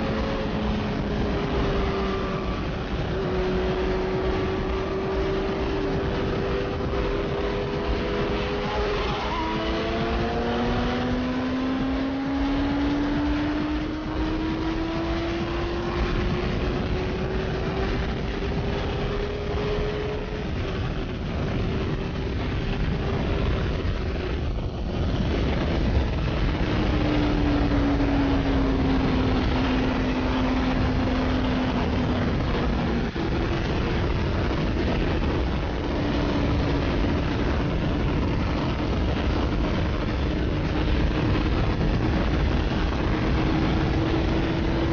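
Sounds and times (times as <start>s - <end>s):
motorcycle engine at high speed: 0.0s - 44.9s
wind noise: 0.0s - 44.9s.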